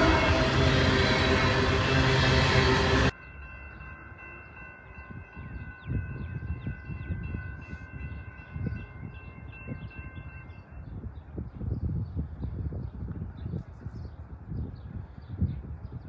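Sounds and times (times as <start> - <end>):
train rumbling: 0.0 - 5.4
high ringing chord: 0.0 - 5.8.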